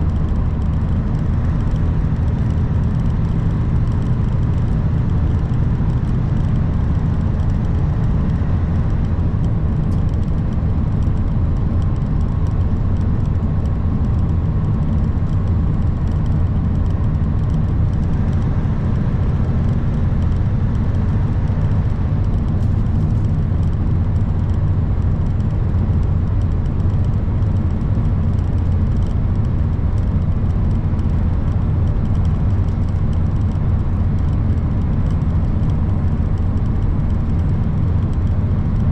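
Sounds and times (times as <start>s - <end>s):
truck engine and road noise: 0.0s - 38.9s.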